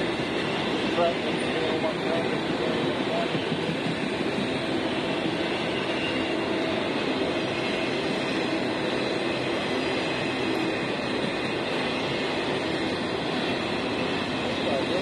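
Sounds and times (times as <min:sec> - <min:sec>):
faint steady tones: 0:00.0 - 0:15.0
freight train wheels on rail: 0:00.0 - 0:15.0.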